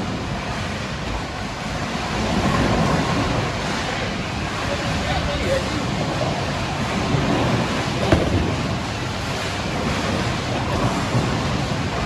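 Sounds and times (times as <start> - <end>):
bowling balls rolling: 4.4 - 12.0.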